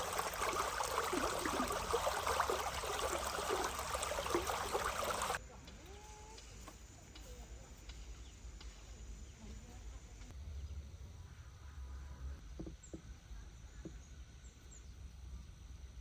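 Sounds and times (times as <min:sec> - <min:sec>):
loud rushing water-like noise: 0:00.0 - 0:05.4
faint chicken clucks: 0:11.2 - 0:14.3.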